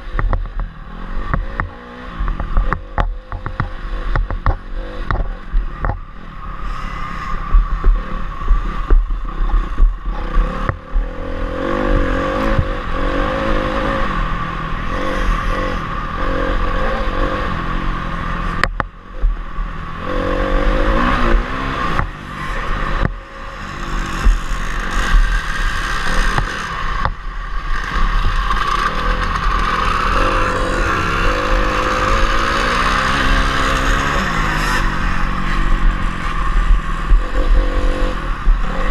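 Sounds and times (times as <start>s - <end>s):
motorcycle engine revving: 0.0s - 38.9s
motorcycle clattering over bumps: 0.1s - 6.2s.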